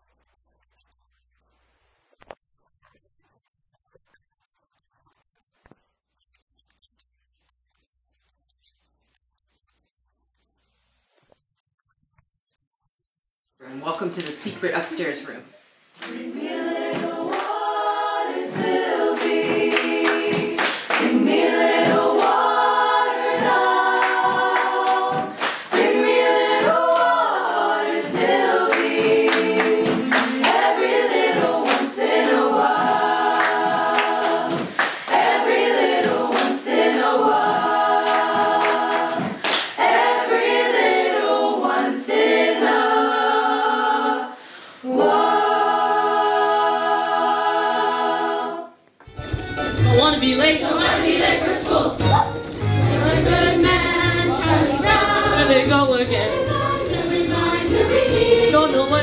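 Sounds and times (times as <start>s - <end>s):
group singing long chords: 16.0s - 48.8s, 50.6s - 59.0s.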